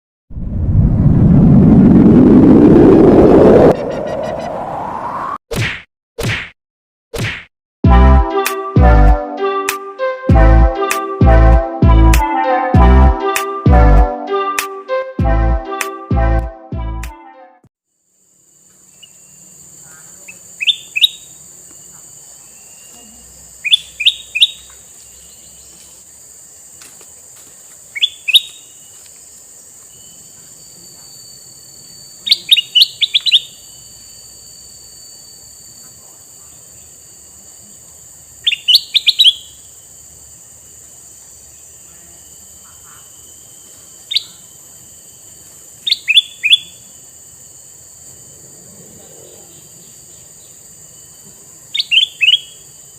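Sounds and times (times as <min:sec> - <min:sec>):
bird chirping: 0:18.9 - 0:21.5, 0:22.2 - 0:26.0, 0:27.9 - 0:29.0, 0:31.9 - 0:34.1, 0:38.4 - 0:39.7, 0:44.0 - 0:44.5, 0:45.8 - 0:46.9, 0:48.8 - 0:52.8.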